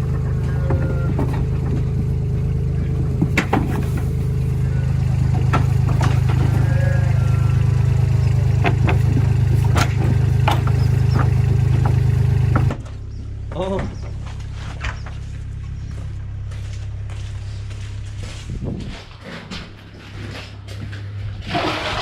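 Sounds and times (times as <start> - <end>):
knocks and clanks: 0.0 - 6.8, 8.0 - 12.9
engine running steadily: 0.0 - 22.0.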